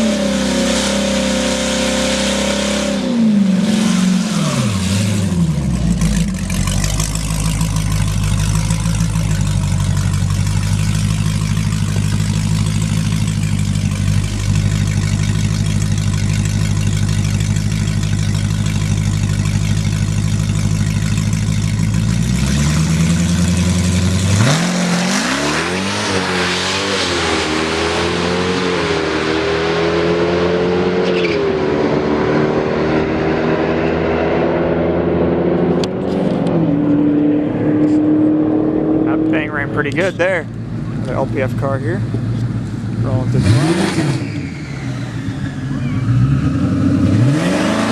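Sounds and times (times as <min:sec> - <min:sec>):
racing car engine revving: 0:00.0 - 0:09.4, 0:21.9 - 0:47.9.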